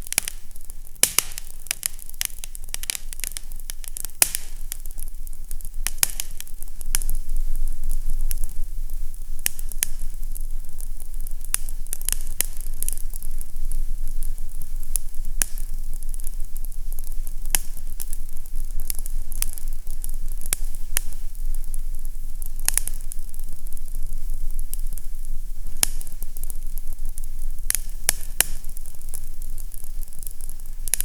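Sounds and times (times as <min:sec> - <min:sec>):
fireplace fire crackling: 0:00.0 - 0:31.0
low fire rumble: 0:00.0 - 0:31.0.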